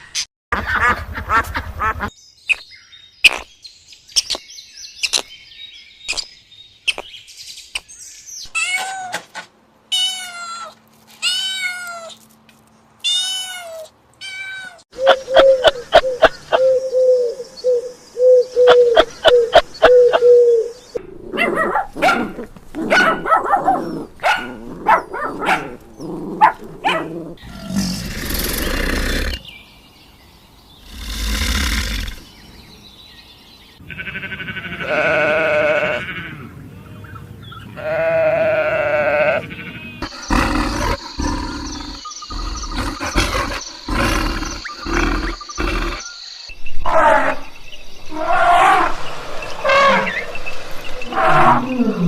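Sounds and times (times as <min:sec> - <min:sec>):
drawn-out pitched animal calls: 0:37.8 - 0:46.1
rough noisy animal calls: 0:37.8 - 0:46.2.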